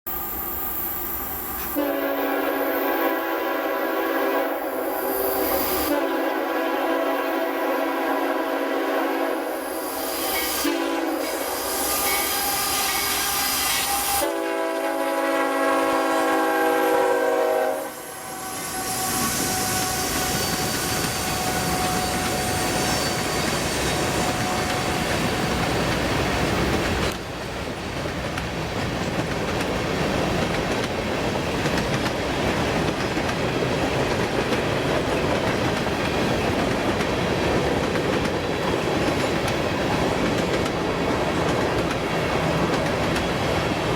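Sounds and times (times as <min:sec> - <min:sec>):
locomotive horn: 0:01.6 - 0:25.6
train wheels clicking on rails: 0:08.6 - 0:14.6, 0:18.0 - 0:43.9.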